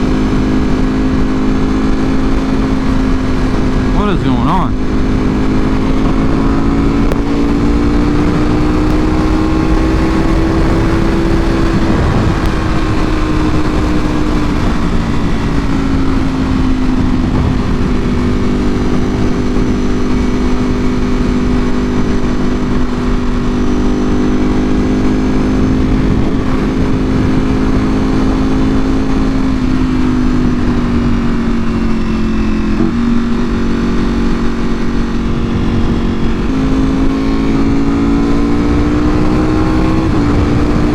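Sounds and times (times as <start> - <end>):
motorcycle engine at speed: 0.0 - 40.9
heavy wind rush: 1.7 - 21.6, 33.3 - 40.9.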